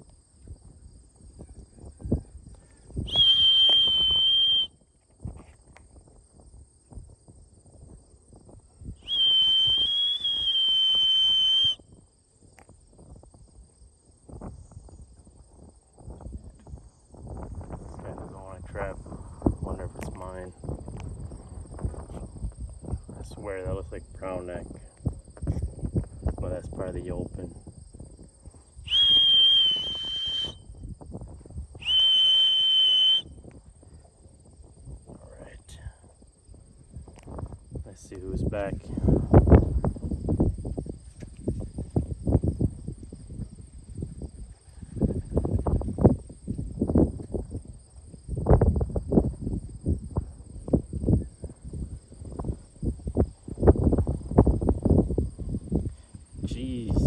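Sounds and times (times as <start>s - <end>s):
high insect drone: 0.0s - 57.0s
high-pitched whistle blasts: 3.1s - 4.8s, 9.0s - 11.8s, 28.9s - 30.8s, 31.8s - 33.4s.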